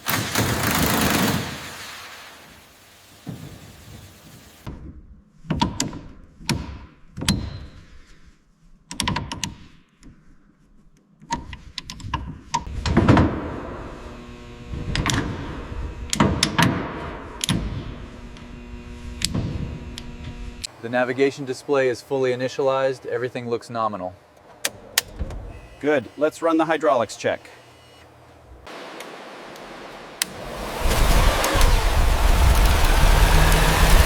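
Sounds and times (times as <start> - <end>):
steady hum of even tones: 13.2 - 16.2, 17.1 - 20.7.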